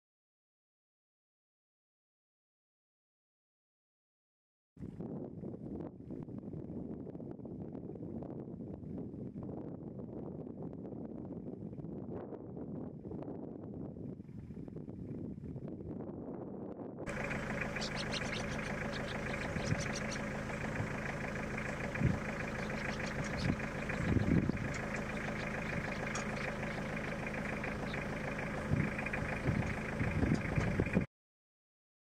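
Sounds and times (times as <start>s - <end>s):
wind noise: 4.8s - 31.1s
vehicle engine idling: 17.1s - 31.1s
soft low thumps: 17.9s - 31.1s.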